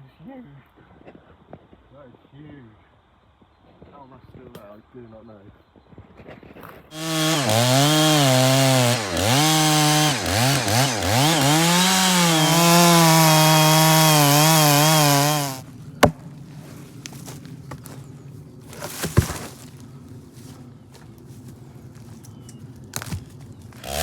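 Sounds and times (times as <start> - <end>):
chainsaw cutting wood: 6.9 - 16.3, 18.7 - 19.8, 22.9 - 24.0.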